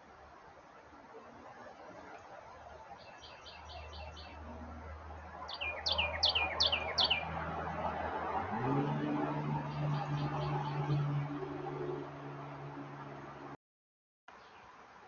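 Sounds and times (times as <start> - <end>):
small birds chirping: 0.8 - 4.5, 5.2 - 7.4, 9.6 - 11.4.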